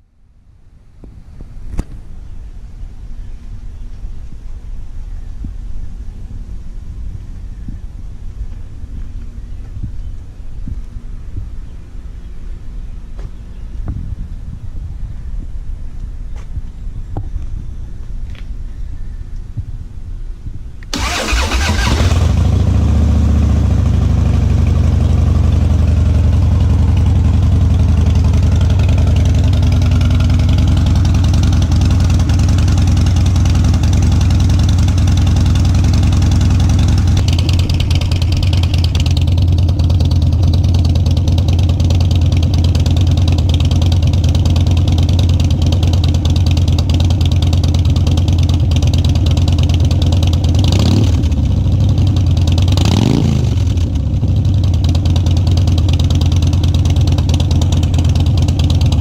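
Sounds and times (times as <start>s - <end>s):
motorcycle engine idling: 20.9s - 59.0s.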